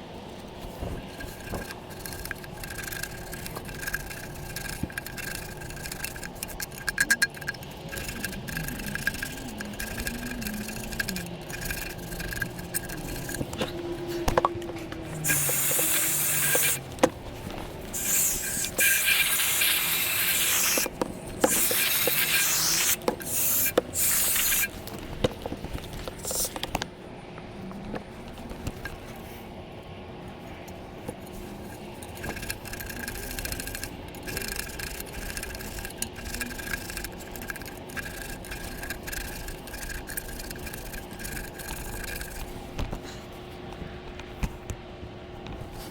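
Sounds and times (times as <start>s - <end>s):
rubbing and scraping: 0.3s - 26.8s
spraying hiss: 15.2s - 16.8s, 18.0s - 24.7s.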